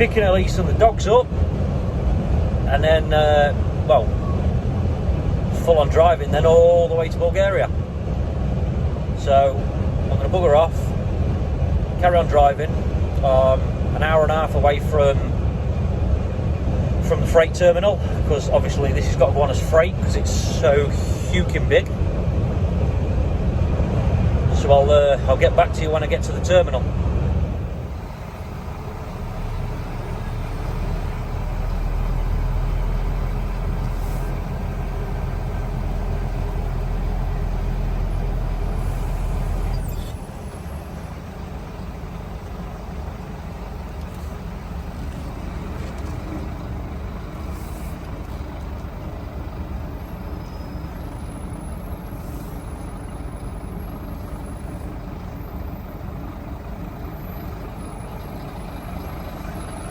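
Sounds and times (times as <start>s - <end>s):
lorry engine and road noise: 0.0s - 59.9s.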